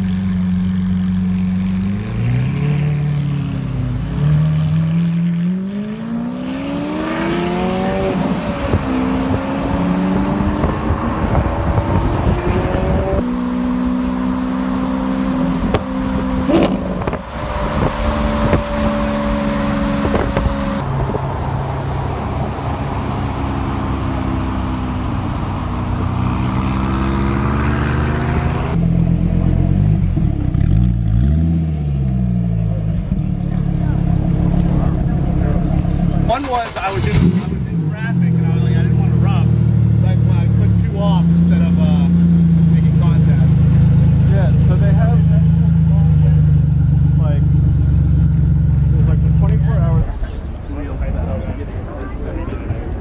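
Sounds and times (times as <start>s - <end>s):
car engine accelerating through gears: 0.0s - 36.4s.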